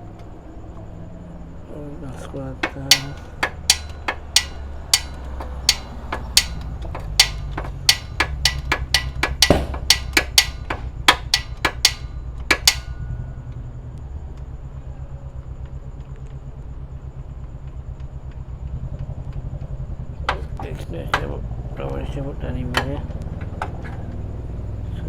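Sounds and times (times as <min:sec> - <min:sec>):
steady low hum: 0:00.0 - 0:25.0
hand tool clicks and taps: 0:02.6 - 0:13.0.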